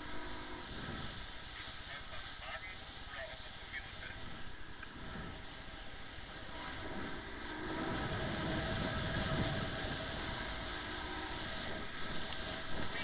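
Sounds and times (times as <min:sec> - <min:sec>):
motorboat engine running: 0:06.2 - 0:13.0
wind noise: 0:07.8 - 0:10.7.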